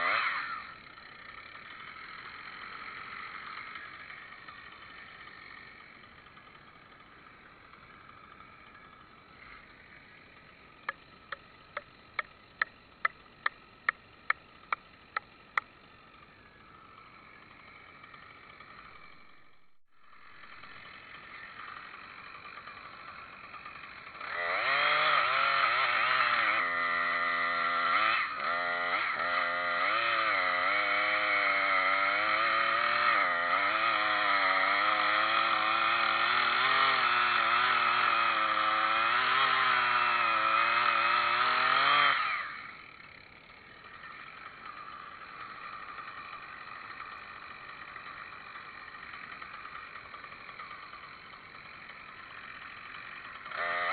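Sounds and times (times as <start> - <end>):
chainsaw engine idling: 0.0 - 53.9
chainsaw revving: 0.0 - 53.9.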